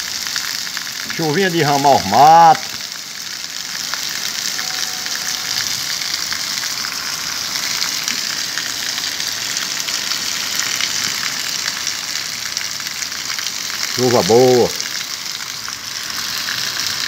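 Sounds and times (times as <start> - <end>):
heavy rain on flooded street: 0.0 - 17.0.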